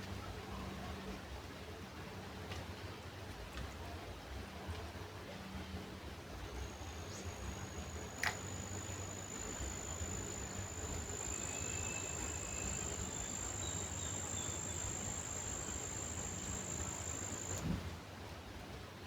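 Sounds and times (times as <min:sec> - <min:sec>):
cricket trilling: 0:06.6 - 0:17.6
faint bird chirps: 0:06.6 - 0:17.6.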